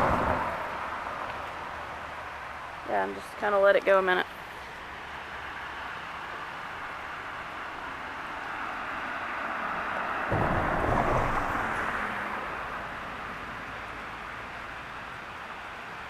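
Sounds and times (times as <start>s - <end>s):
river water rushing: 0.0s - 16.0s
low rumble: 10.3s - 13.0s.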